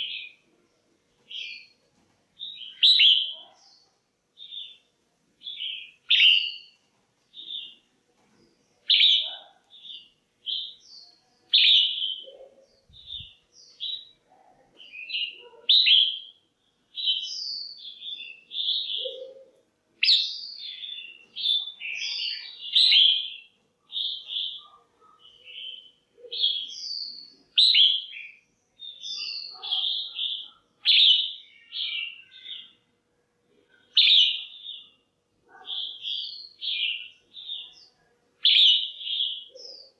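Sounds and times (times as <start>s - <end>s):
bird chirping and chattering: 2.4s - 4.8s, 5.4s - 7.8s, 8.8s - 14.2s, 14.8s - 16.4s, 17.0s - 32.8s.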